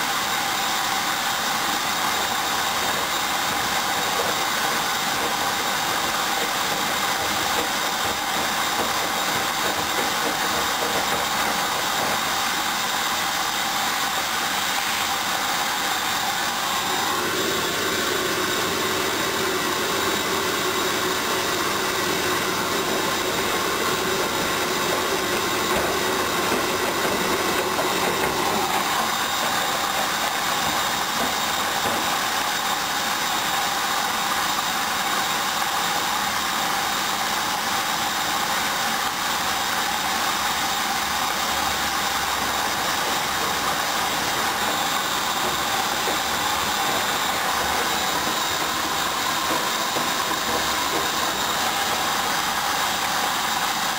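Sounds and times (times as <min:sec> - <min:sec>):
washing machine whirring: 0:00.0 - 0:53.9.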